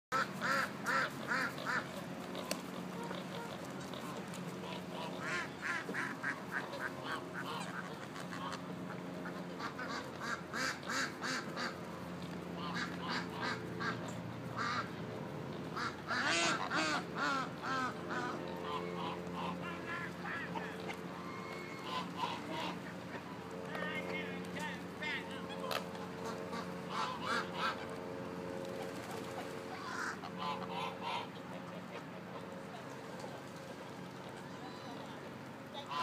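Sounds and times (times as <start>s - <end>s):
ducks quacking: 0.1s - 36.0s
geese honking: 0.1s - 36.0s
steady low hum: 0.1s - 36.0s.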